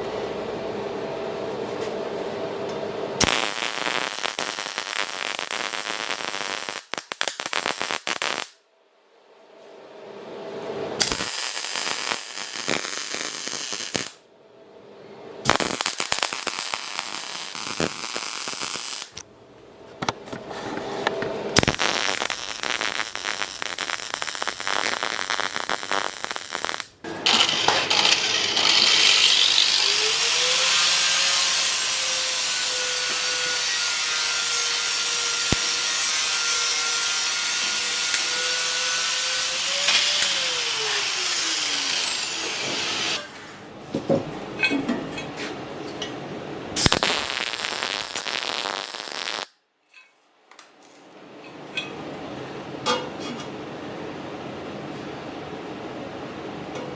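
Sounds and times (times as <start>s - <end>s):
crackling: 3.2s - 8.6s, 11.0s - 14.2s, 15.5s - 19.3s, 21.6s - 30.5s, 46.8s - 49.5s
power tool motor running: 27.1s - 31.0s.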